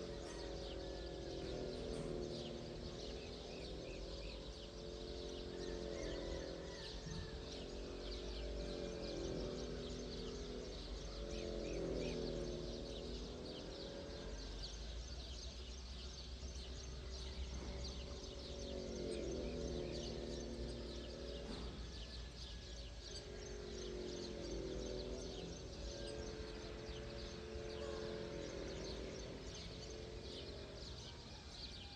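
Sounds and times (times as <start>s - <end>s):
low sustained tones: 0.0s - 31.9s
small birds chirping: 0.0s - 31.9s.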